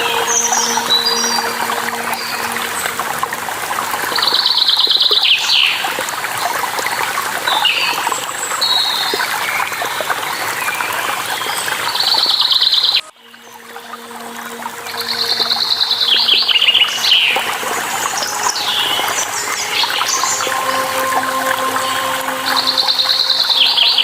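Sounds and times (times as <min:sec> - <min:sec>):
running water splashing: 0:00.0 - 0:24.0.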